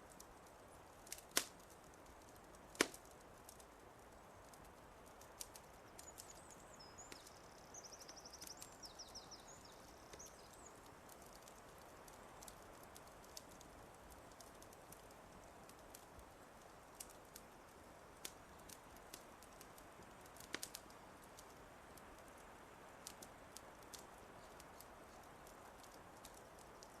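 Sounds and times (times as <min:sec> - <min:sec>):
soft steady hiss: 0:00.0 - 0:27.0
wood fire crackles: 0:00.0 - 0:27.0
songbird singing: 0:05.5 - 0:13.0.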